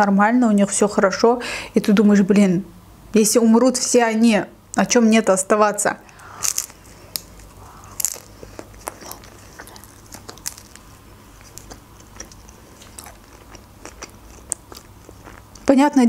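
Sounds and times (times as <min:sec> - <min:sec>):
woman chewing crunchy flatbread: 0:06.1 - 0:15.8.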